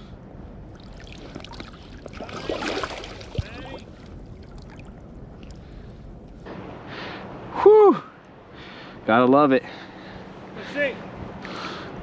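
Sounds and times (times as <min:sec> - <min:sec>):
water splashing and gurgling: 0:00.7 - 0:05.6
river water flowing: 0:00.7 - 0:12.0.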